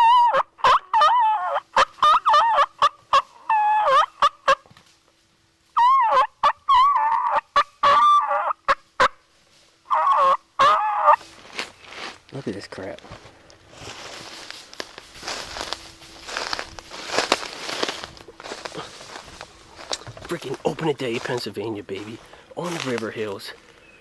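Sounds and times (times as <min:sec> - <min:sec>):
turkeys gobbling: 0:00.0 - 0:04.6, 0:05.8 - 0:09.2, 0:09.9 - 0:11.2, 0:15.2 - 0:24.0.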